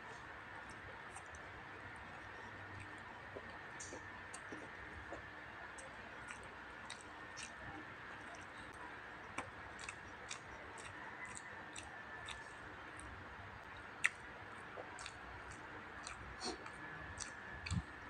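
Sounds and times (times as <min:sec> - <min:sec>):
wet mouth chewing clicks: 0:05.8 - 0:07.6, 0:09.4 - 0:13.1, 0:14.0 - 0:17.9.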